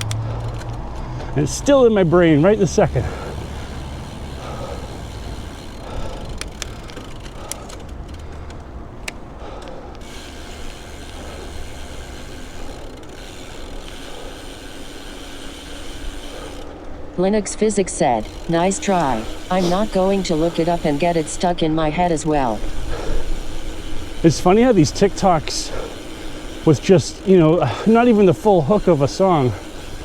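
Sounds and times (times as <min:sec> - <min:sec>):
sharp clicks: 0:00.0 - 0:01.1, 0:05.9 - 0:10.0
bicycle riding noise: 0:00.0 - 0:30.0.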